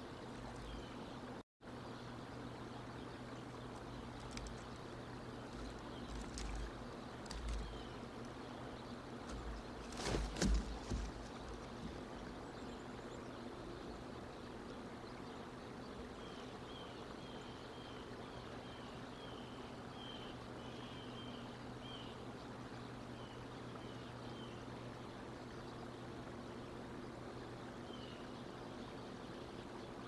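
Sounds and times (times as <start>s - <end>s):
steady low hum: 0.0s - 30.0s
eagle wingbeats: 9.2s - 12.2s.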